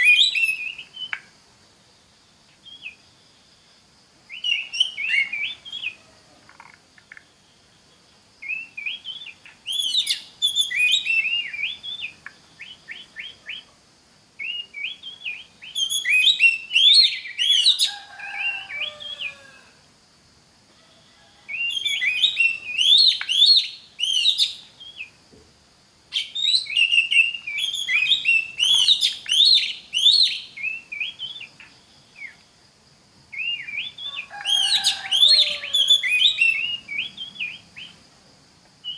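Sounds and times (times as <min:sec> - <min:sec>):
bird singing whistled phrases: 0:00.0 - 0:01.3, 0:04.3 - 0:06.0, 0:08.4 - 0:13.7, 0:14.4 - 0:19.4, 0:21.5 - 0:25.2, 0:26.1 - 0:31.6, 0:33.4 - 0:38.0.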